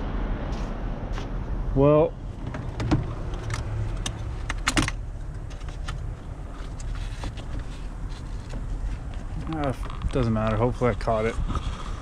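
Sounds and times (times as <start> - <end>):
sharp clicks and rattles: 2.4 - 10.7.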